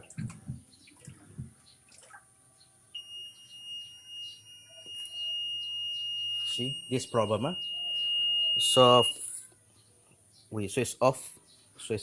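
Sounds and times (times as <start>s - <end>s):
washing machine alarm buzzer: 3.0s - 9.3s.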